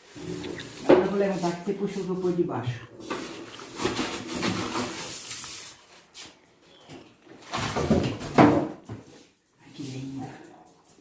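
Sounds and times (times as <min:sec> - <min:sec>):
styrofoam rubbing and squeaking: 0:00.0 - 0:02.1, 0:03.0 - 0:06.4.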